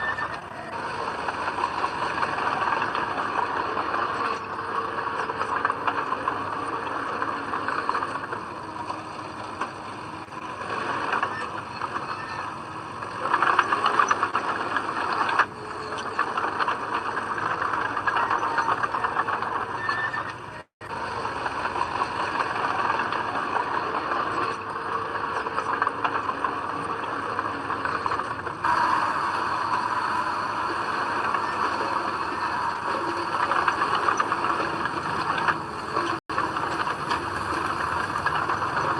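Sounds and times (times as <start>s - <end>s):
bulldozer diesel engine: 0.0s - 38.9s
tracks squealing and rattling: 0.0s - 38.9s.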